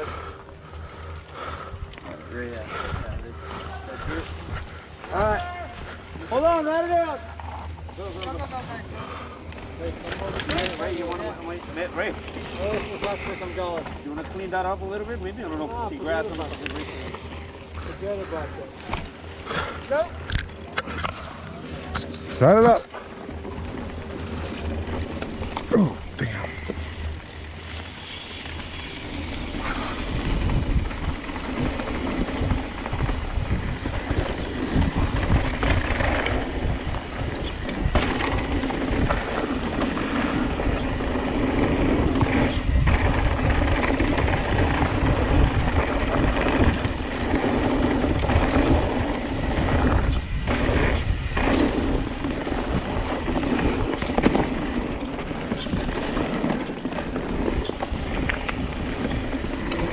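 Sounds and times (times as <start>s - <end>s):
bike tyre and trail noise: 0.0s - 59.9s
bike knocks and rattles: 21.8s - 59.9s
wind on microphone: 28.6s - 54.5s.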